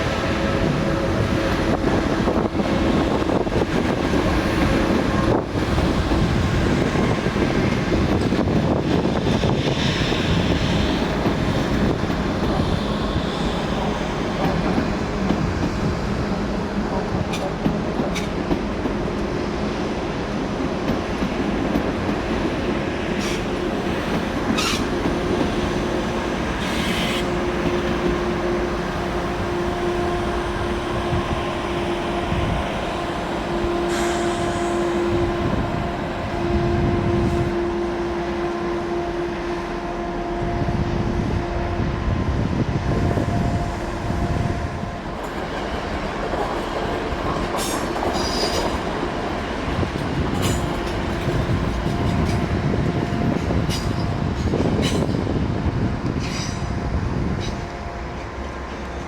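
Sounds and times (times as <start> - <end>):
train rumbling on tracks: 0.0 - 59.0.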